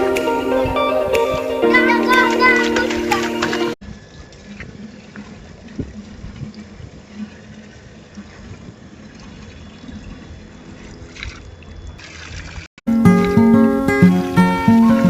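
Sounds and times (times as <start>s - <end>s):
water pouring and trickling: 1.8s - 13.5s.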